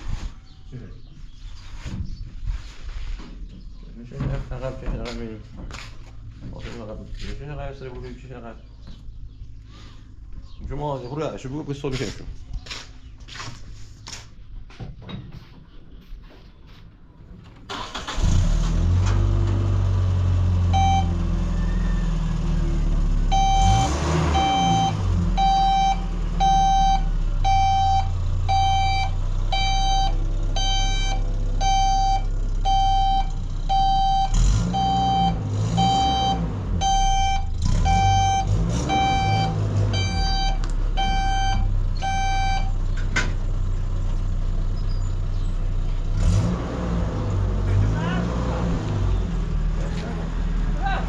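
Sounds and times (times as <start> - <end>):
vehicle engine running: 17.7 - 51.0
reversing alarm beeping: 20.7 - 22.4, 23.3 - 42.8.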